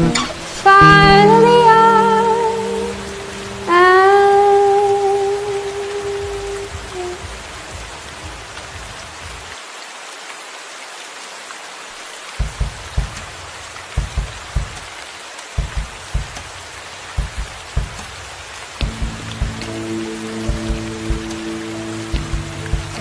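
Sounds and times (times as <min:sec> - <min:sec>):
steady rain: 0:00.0 - 0:23.0
low thuds: 0:12.4 - 0:15.0, 0:15.6 - 0:21.5, 0:22.1 - 0:23.0.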